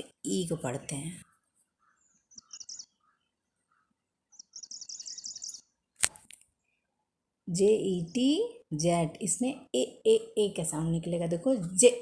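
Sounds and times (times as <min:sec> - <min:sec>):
small bird chirping: 0:00.8 - 0:05.8.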